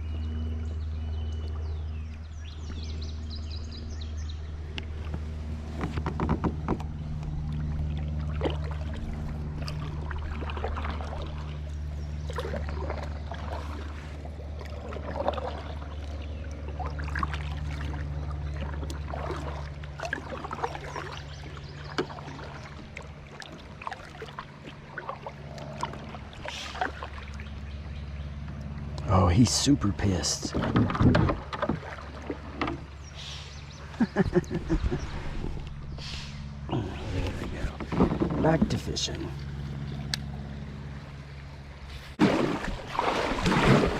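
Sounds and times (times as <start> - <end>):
steady low hum: 0.0 - 43.9
paddle splashes: 1.1 - 43.9.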